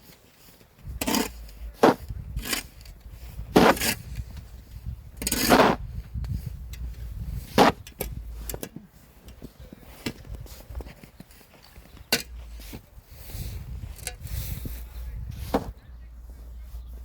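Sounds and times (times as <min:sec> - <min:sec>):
snow shovel scraping snow: 0:00.0 - 0:05.9, 0:07.3 - 0:09.3
wind rumble: 0:00.8 - 0:08.6, 0:12.3 - 0:17.0.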